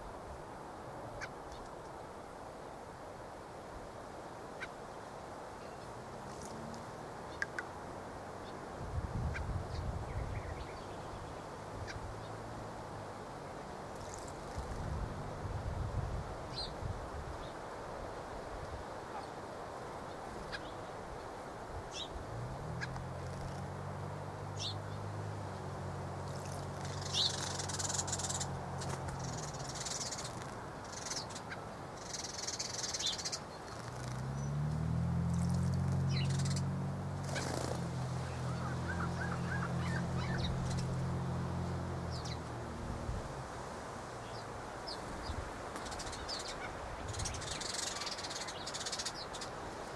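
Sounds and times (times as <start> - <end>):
small birds chirping: 5.6 - 7.8, 8.4 - 12.6, 13.5 - 15.1, 16.5 - 17.6, 19.1 - 42.8, 44.2 - 49.9
low mechanical drone: 33.8 - 43.4
bird splashing in bird bath: 37.2 - 38.9.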